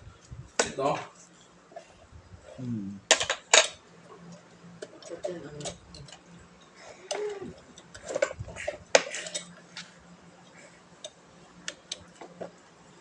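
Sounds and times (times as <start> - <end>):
metallic clicks of bike parts: 11.0 - 12.2.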